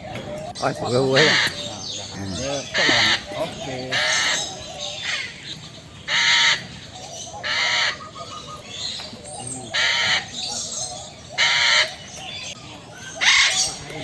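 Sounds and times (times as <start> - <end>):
parrot squawking harshly: 1.0 - 1.6, 2.5 - 5.4, 6.1 - 6.7, 7.4 - 8.1, 9.7 - 10.7, 11.4 - 12.0.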